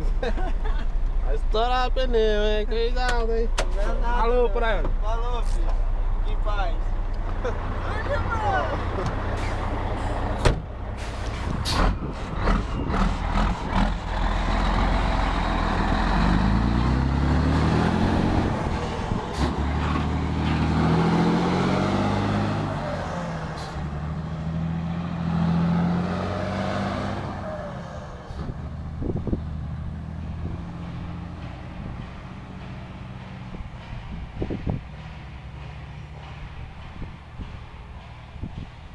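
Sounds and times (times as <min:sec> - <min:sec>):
diesel truck engine shifting gears: 0:00.0 - 0:38.9.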